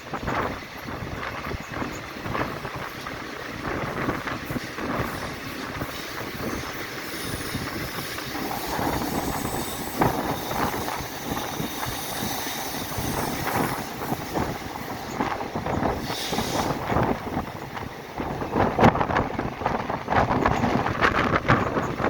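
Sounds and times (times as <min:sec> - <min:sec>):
train rumbling: 0:00.0 - 0:22.0
high wheel squeal: 0:05.0 - 0:17.1.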